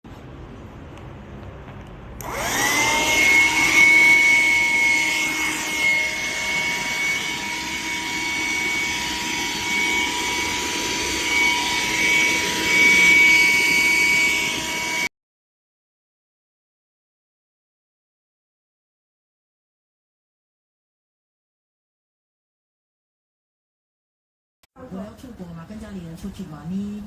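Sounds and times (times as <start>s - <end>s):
handheld vacuum cleaner whining: 2.2s - 15.1s.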